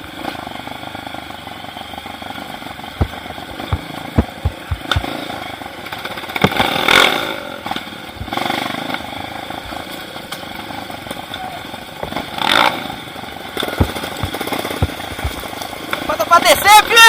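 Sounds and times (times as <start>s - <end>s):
motorcycle engine running: 0.0s - 16.6s
sharp knocks: 3.0s - 5.2s, 13.6s - 15.6s.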